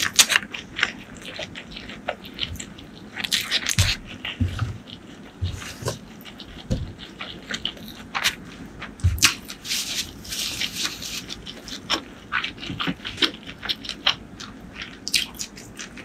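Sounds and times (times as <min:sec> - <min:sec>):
chewing with wet smacking: 0:00.0 - 0:16.0
paper tissue rustling: 0:09.5 - 0:11.4.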